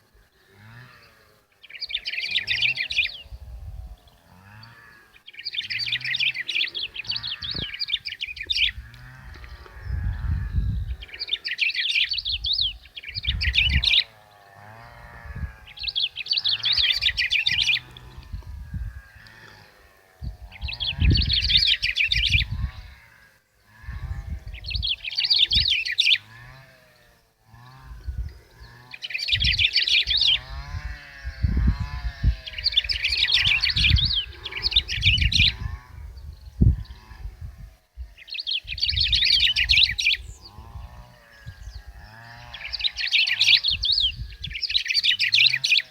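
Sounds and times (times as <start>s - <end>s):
wind rumble on microphone: 2.3s - 4.9s, 5.6s - 11.4s, 12.0s - 45.6s.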